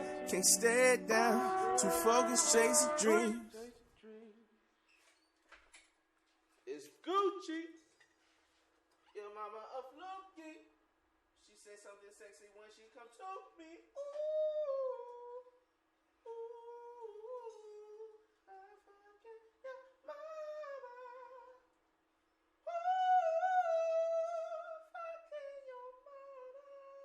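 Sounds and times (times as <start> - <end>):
person humming melody: 0.0 - 3.5.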